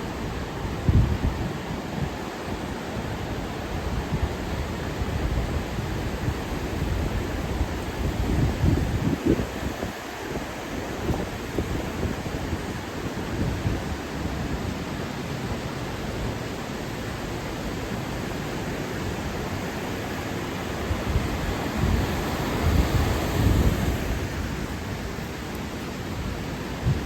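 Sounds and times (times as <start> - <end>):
river rushing: 0.0 - 27.0
wind buffeting microphone: 0.3 - 2.2, 3.8 - 14.7, 20.4 - 27.0.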